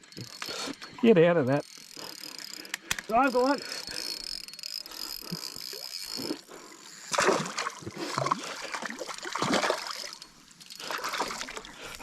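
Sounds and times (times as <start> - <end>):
fish thrashing and splashing: 4.0 - 12.0.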